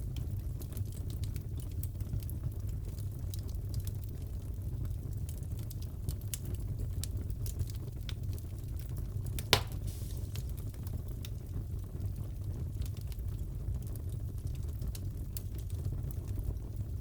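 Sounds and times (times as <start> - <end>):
fireplace crackling: 0.0 - 17.0
sharp loud crack: 9.5 - 10.5.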